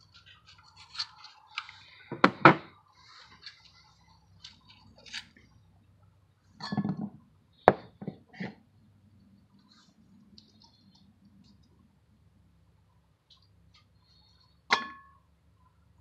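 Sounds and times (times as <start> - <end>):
small metal scrapes and clicks: 0.0 - 1.9.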